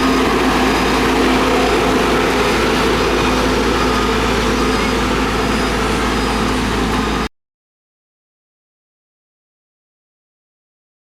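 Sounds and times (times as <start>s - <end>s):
diesel engine running: 0.0s - 7.3s.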